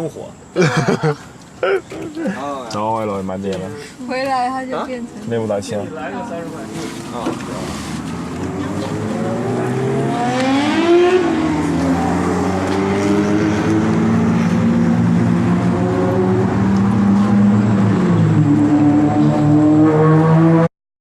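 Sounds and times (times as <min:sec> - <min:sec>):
car engine accelerating: 0:06.6 - 0:20.7.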